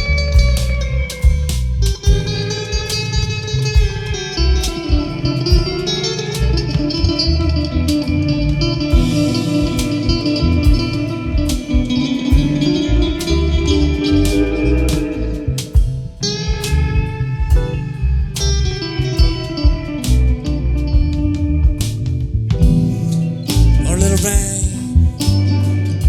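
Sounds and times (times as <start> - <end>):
bass: 0.0 - 26.0
drums: 0.0 - 26.0
electric guitar melody: 0.0 - 26.0.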